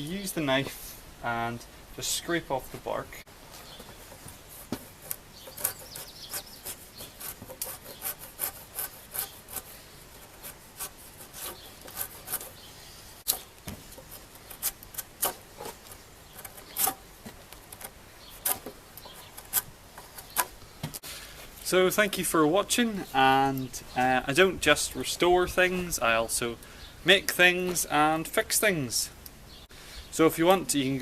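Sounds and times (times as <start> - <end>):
knife scraping bark off log: 4.1 - 12.6, 13.3 - 17.0.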